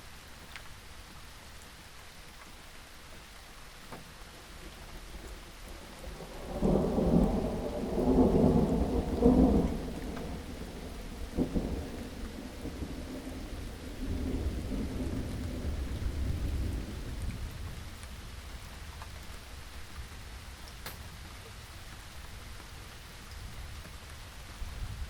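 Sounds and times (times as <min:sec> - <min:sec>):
steady rain: 0:00.0 - 0:25.0
thunder rumbling: 0:05.6 - 0:18.8.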